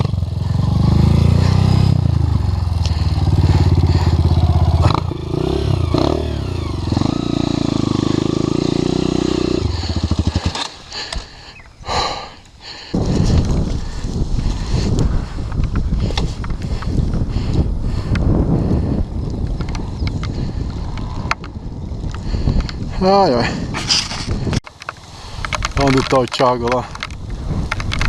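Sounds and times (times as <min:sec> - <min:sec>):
motorcycle engine revving: 0:00.0 - 0:12.4.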